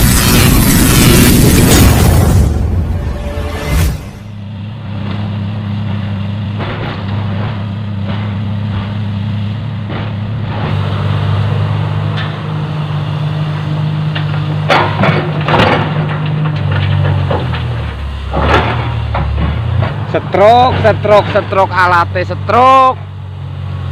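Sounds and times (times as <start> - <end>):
heavy diesel engine running: 0.0 - 23.9.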